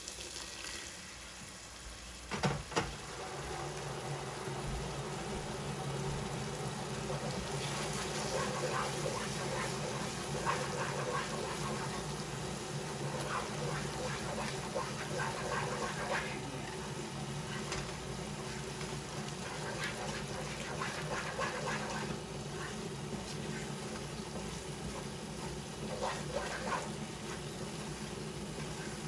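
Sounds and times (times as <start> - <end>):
onion sizzling in a pot: 0.0 - 29.0
wooden spoon scraping a pot: 19.4 - 27.4.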